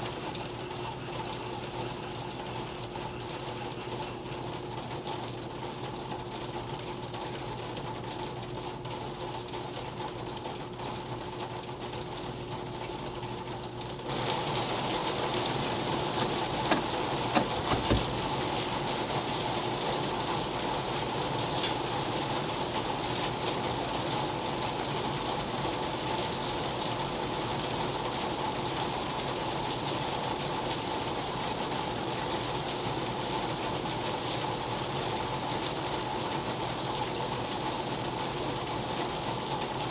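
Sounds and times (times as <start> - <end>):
steady rain: 0.0 - 39.9
sharp taps: 16.2 - 18.2.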